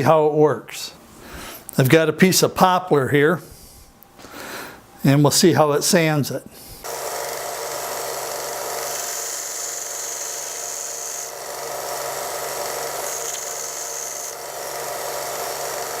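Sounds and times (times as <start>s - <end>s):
belt sander motor humming: 6.8s - 16.0s
wood rasping on sanding belt: 6.9s - 16.0s.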